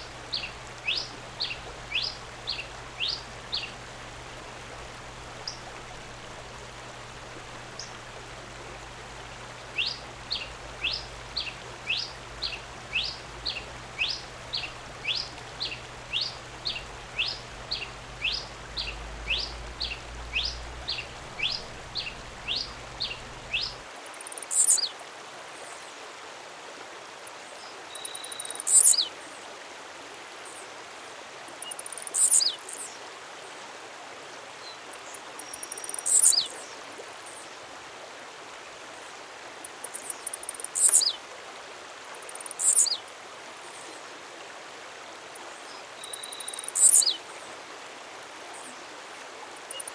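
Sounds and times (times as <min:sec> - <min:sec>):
high bird call with falling tail: 0:09.8 - 0:23.8.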